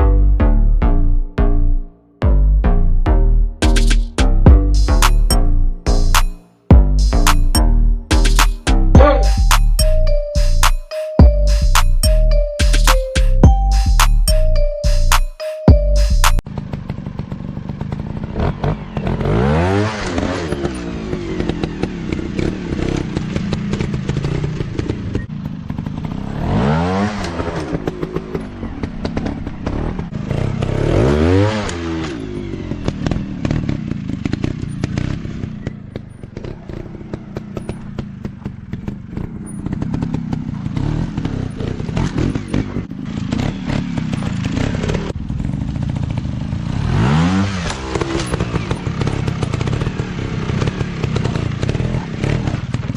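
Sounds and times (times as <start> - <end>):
dirt bike engines revving: 16.5 - 52.9.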